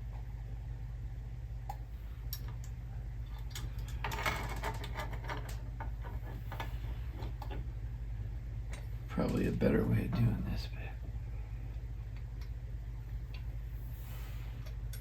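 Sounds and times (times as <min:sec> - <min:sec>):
steady low hum: 0:00.0 - 0:15.0
small metal parts clicking and scraping: 0:03.2 - 0:07.4.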